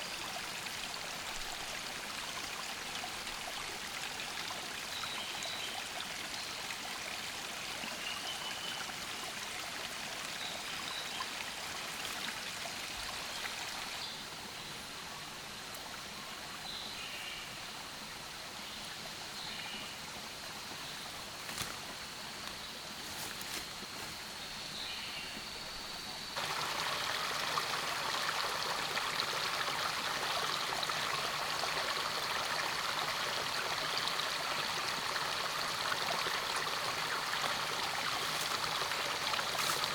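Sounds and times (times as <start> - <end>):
rushing water: 0.0 - 14.4, 26.4 - 39.9.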